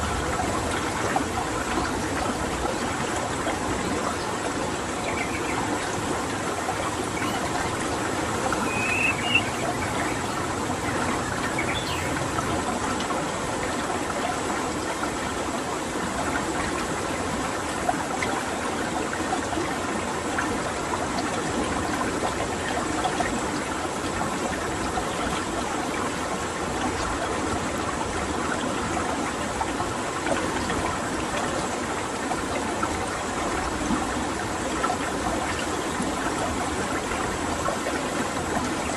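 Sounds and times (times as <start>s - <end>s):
running water stream: 0.0s - 38.9s
high bird chirps: 3.8s - 12.6s.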